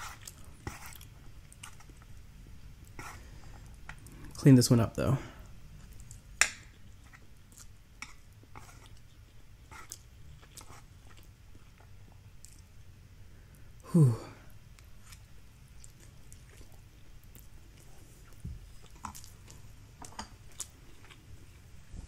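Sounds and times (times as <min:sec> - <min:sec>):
quiet chewing of noodles: 0:00.0 - 0:04.4, 0:05.4 - 0:12.8, 0:14.7 - 0:22.0.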